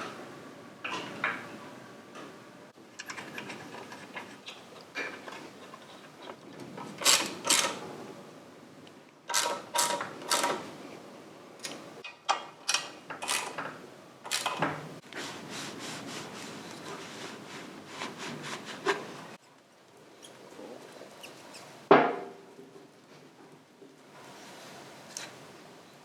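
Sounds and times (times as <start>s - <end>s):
rubbing and handling noise: 14.3s - 19.4s.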